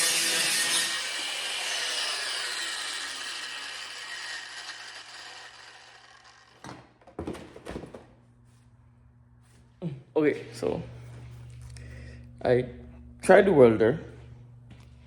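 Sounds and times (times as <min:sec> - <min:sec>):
power grinder whine winding down: 0:00.0 - 0:06.7.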